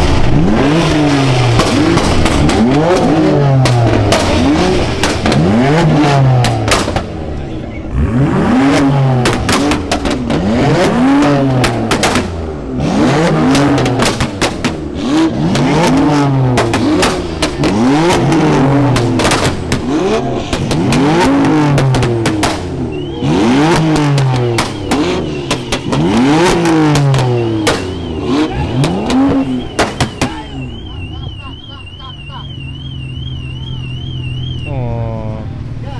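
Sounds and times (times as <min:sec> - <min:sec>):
car engine revving: 0:00.0 - 0:35.9
exhaust crackles: 0:00.0 - 0:35.9
car alarm warbling: 0:17.6 - 0:35.2.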